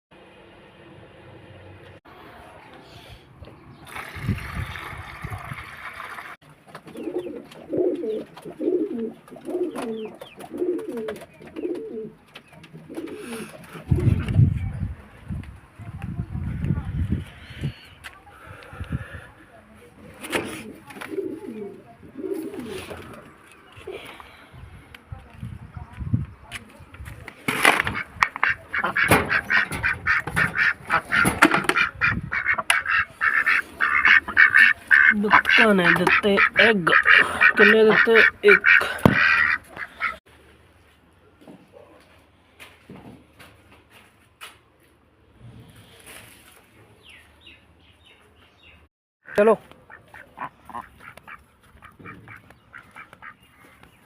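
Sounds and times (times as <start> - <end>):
pigeon cooing: 6.9 - 14.2, 20.3 - 24.2
ducks quacking: 27.7 - 40.2, 49.2 - 53.9.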